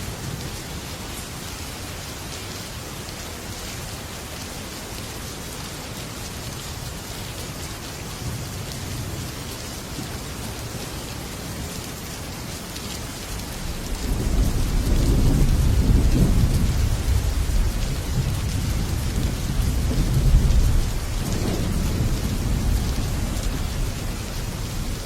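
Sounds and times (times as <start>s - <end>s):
heavy rain on a metal roof: 0.0s - 25.0s
low roll of thunder: 13.6s - 25.0s.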